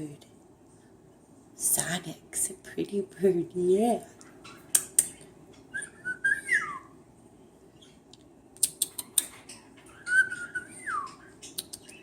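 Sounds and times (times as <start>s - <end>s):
sharp bird clicks: 4.5s - 5.7s, 8.1s - 9.6s, 10.2s - 12.0s
cockatiel whistling: 5.7s - 6.9s, 9.9s - 11.3s.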